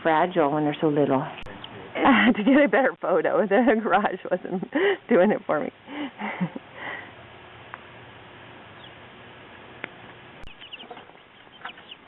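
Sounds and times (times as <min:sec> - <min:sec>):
chicks peeping: 0:00.7 - 0:02.0, 0:08.7 - 0:09.1, 0:09.8 - 0:12.0.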